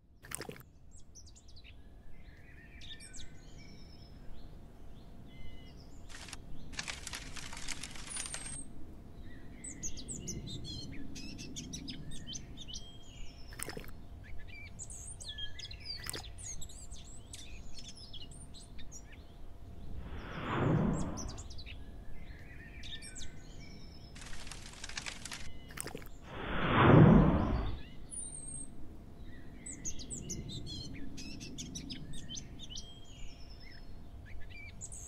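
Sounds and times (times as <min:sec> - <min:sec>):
sharp clicks: 0:06.1 - 0:08.6, 0:16.0 - 0:16.3, 0:24.2 - 0:26.1
low background rumble: 0:15.8 - 0:22.3, 0:23.4 - 0:28.0
burst of hiss: 0:26.3 - 0:27.8.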